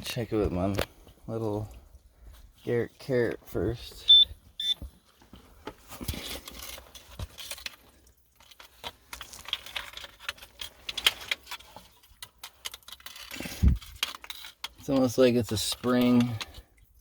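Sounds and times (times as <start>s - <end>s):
gravel clinking and scraping: 4.8s - 17.0s.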